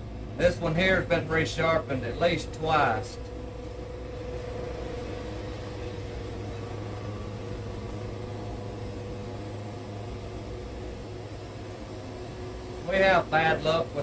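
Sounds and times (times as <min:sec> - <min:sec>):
band sawmill running: 0:00.0 - 0:14.0.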